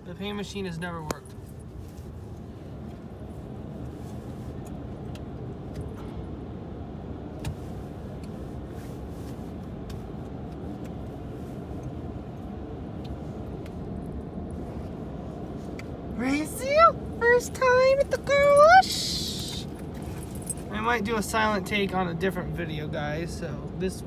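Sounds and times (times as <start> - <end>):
car engine idling: 11.7 - 24.0.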